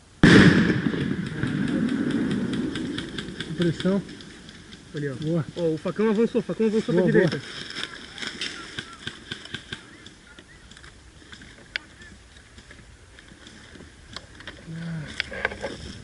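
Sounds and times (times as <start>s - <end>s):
airsoft guns firing: 0.2s - 4.3s
distant voices calling: 0.8s - 16.0s.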